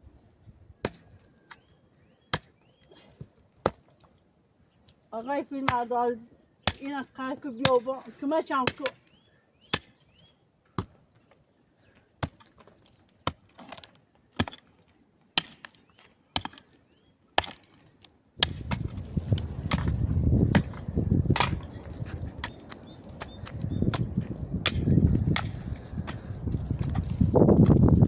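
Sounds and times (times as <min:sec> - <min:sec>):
wind rumbling on microphone: 0:18.4 - 0:28.0.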